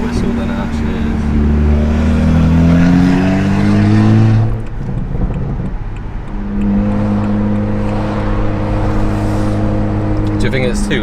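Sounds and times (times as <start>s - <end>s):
car exhaust drone from cabin: 0.0s - 11.0s.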